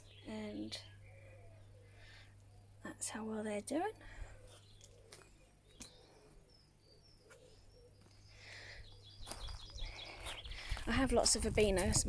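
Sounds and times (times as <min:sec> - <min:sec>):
faint bird chirps: 0:04.0 - 0:10.8.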